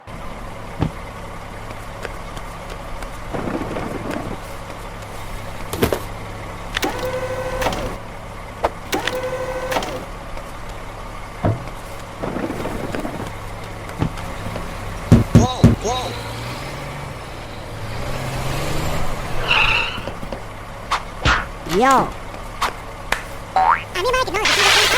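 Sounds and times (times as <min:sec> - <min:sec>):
garbage truck engine idling: 0:00.0 - 0:17.9, 0:20.1 - 0:21.6, 0:22.2 - 0:24.9
mechanical whines: 0:06.7 - 0:08.0, 0:08.9 - 0:10.1, 0:24.4 - 0:24.9.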